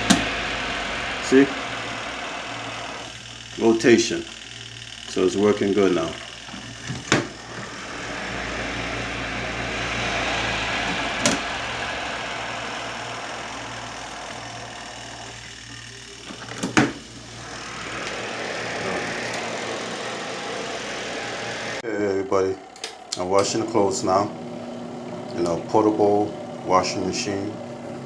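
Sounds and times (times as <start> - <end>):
washing machine motor hum: 0.0 - 28.0.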